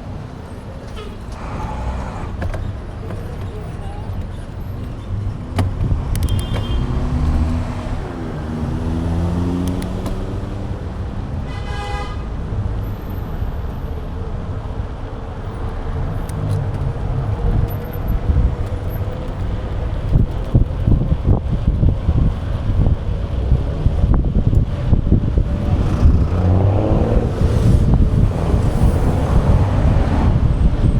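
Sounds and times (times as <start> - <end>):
road traffic: 0.0 - 30.9
motor vehicle passing: 5.8 - 11.2, 24.1 - 30.9
wind buffeting microphone: 14.1 - 30.9.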